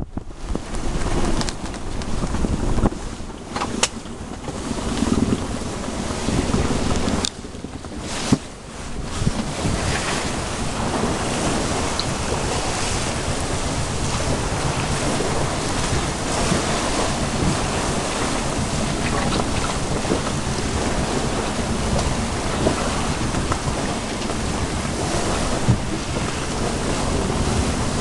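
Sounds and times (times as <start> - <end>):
water rushing past hull: 0.0 - 28.0
wind buffeting microphone: 0.0 - 28.0.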